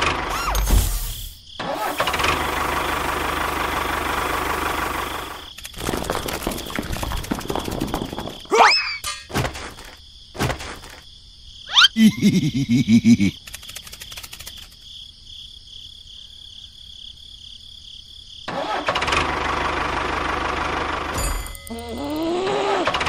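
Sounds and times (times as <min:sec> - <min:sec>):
engine running: 0:01.9 - 0:05.4.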